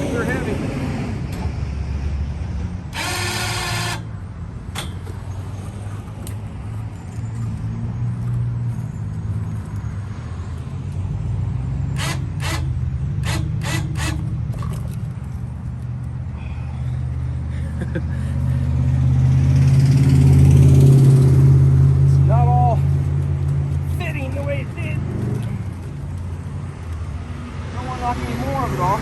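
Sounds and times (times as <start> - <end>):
electric winch motor: 2.9 - 4.1, 12.0 - 14.3.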